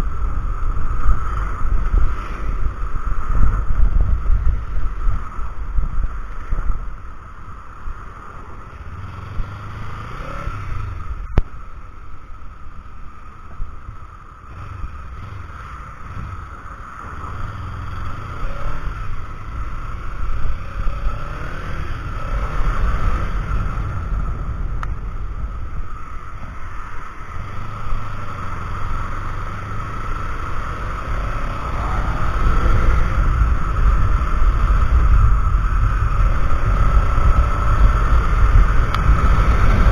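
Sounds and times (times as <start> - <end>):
faint motorcycle engine: 0.0 - 39.9
wind buffeting microphone: 30.6 - 39.9.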